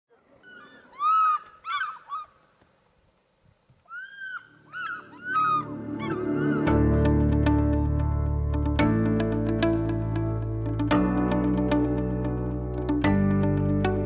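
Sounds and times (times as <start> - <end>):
bird ringing calls: 3.9 - 6.7
soft music: 5.0 - 14.0.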